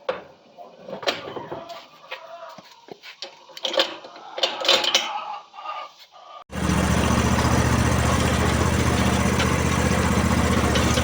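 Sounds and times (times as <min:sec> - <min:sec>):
diesel tractor engine running: 0:06.5 - 0:11.0.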